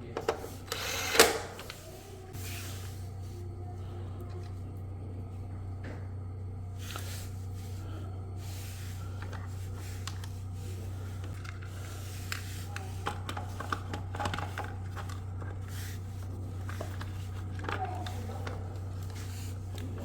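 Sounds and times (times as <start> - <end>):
steady low hum: 0.0 - 20.0
objects being handled: 6.8 - 20.0.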